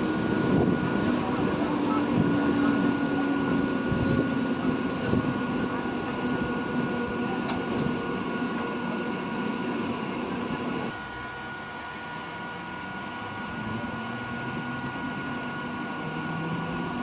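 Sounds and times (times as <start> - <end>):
train rumbling past: 0.0 - 10.9.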